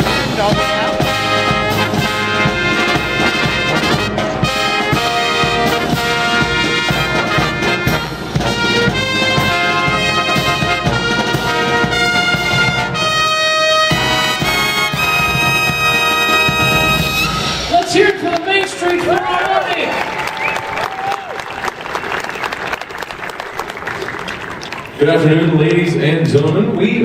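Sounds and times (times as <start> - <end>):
brass band playing: 0.0 - 18.8.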